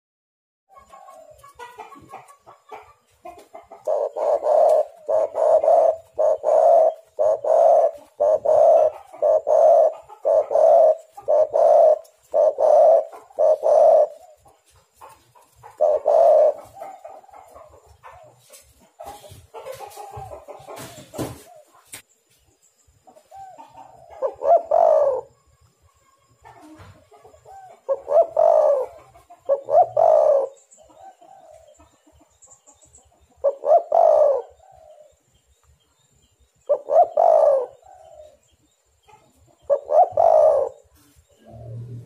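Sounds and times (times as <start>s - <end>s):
dove cooing: 0.7s - 18.4s, 23.2s - 25.5s, 26.4s - 32.0s, 33.4s - 35.2s, 36.6s - 38.4s, 39.1s - 42.0s.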